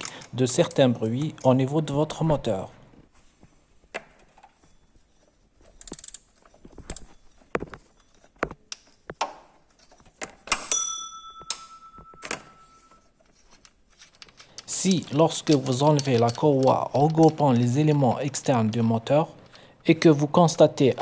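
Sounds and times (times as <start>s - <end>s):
metal tools clinking: 9.7s - 18.9s.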